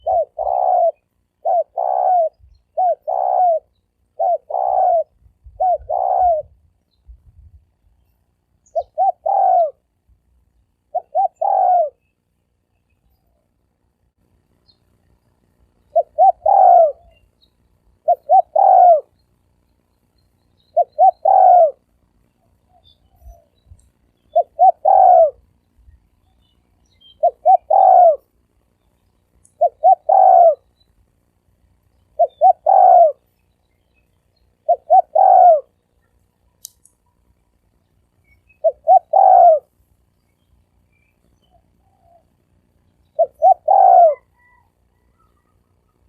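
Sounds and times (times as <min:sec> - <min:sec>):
dove cooing: 0:00.0 - 0:06.7, 0:08.7 - 0:09.9, 0:10.9 - 0:12.0, 0:15.9 - 0:17.2, 0:18.0 - 0:19.1, 0:20.7 - 0:21.8, 0:24.3 - 0:25.5, 0:27.2 - 0:28.3, 0:29.6 - 0:30.7, 0:32.2 - 0:33.3, 0:34.6 - 0:35.8, 0:38.6 - 0:39.7, 0:41.5 - 0:42.4, 0:43.1 - 0:46.0.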